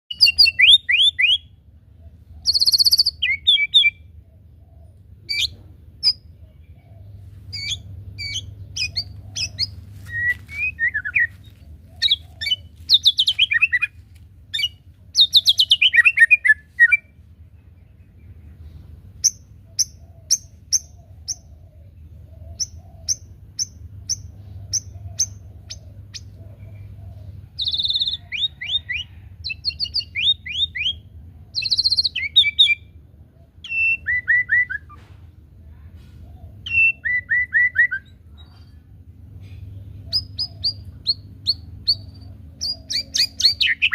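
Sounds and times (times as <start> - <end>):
bird singing whistles and trills: 0.1 - 1.5, 2.4 - 4.2, 5.2 - 6.3, 7.5 - 11.4, 12.0 - 13.9, 14.5 - 17.1, 27.6 - 32.9, 33.6 - 35.0, 36.6 - 38.6, 40.1 - 43.9
faint low hum: 0.1 - 43.9.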